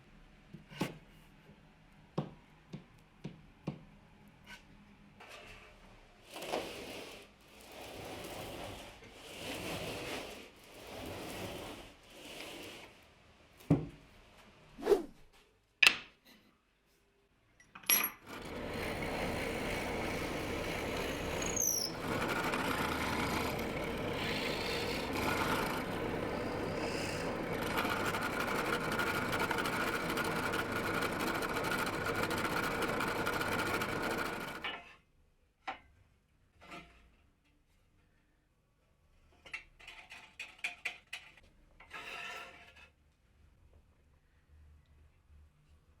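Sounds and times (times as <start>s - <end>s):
power tool running: 18.2s - 34.7s.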